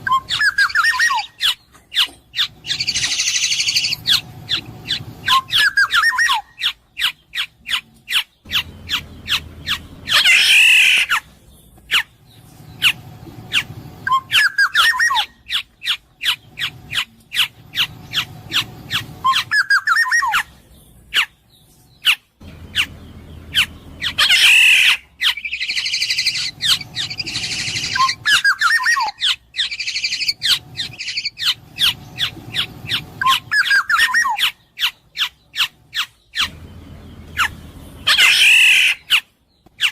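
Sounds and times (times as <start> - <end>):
bird fluty whistled phrases: 0.0 - 1.6, 5.2 - 7.2, 14.0 - 15.4, 17.8 - 20.5, 24.2 - 32.6, 33.2 - 34.5
harsh nasal squawking calls: 0.0 - 11.3, 11.9 - 39.9.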